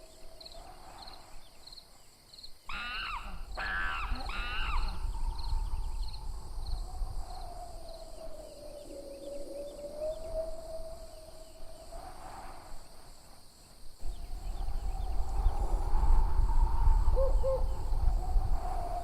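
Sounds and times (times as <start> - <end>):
screeching animal calls: 2.7 - 5.5.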